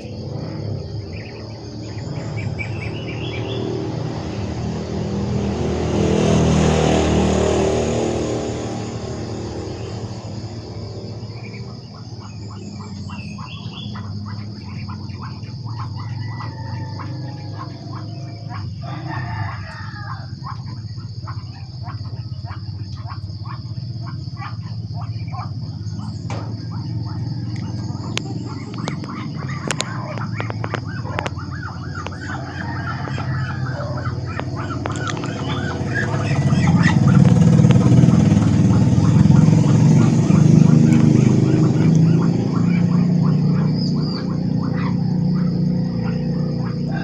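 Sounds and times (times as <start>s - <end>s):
bird chirps: 0.0s - 4.7s, 9.0s - 47.0s
steady low hum: 0.0s - 18.8s, 19.4s - 47.0s
high-pitched insect drone: 0.0s - 47.0s
sharp clicks: 26.2s - 31.4s.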